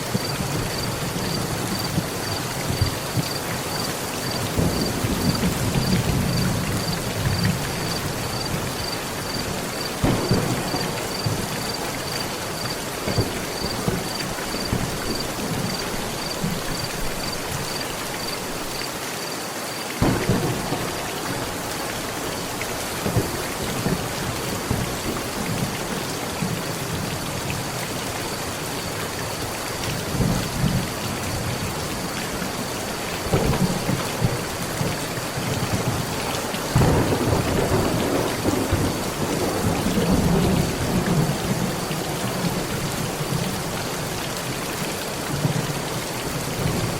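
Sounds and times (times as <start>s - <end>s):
low rolls of thunder: 0.0s - 17.8s, 20.0s - 27.1s, 33.2s - 43.7s
heavy rain on a metal roof: 0.0s - 46.9s
sharp thunderclap: 0.1s - 15.8s, 20.0s - 21.6s, 33.2s - 36.1s, 36.7s - 41.7s.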